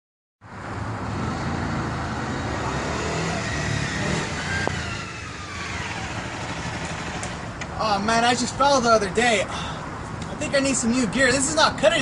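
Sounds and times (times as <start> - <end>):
road noise: 0.4 - 12.0
vehicle engine running: 3.8 - 7.7.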